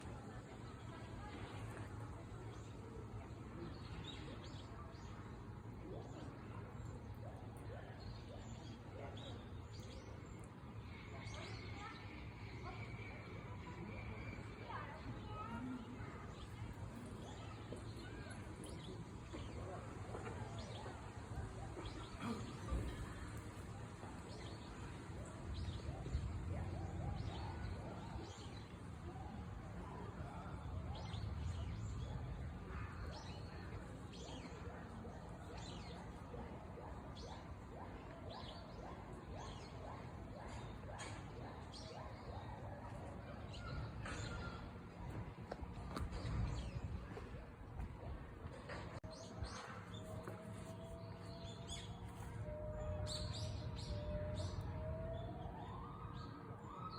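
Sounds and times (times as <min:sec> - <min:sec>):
faint distant voices: 0:00.0 - 0:56.9
birds chirping: 0:02.5 - 0:56.9
distant siren: 0:48.7 - 0:56.9.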